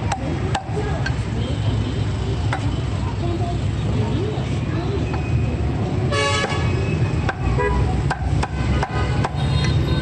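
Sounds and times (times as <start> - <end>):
road traffic rumble: 0.0 - 10.0
car horn toot: 6.1 - 6.7, 8.6 - 10.0.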